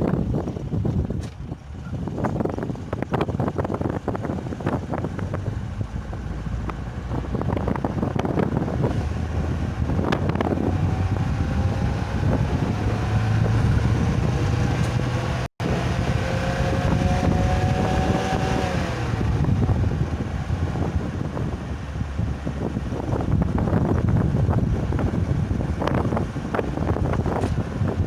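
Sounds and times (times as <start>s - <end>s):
engine and road rumble: 0.0s - 28.0s
wind buffeting microphone: 0.0s - 28.0s
rising whine: 5.1s - 21.6s.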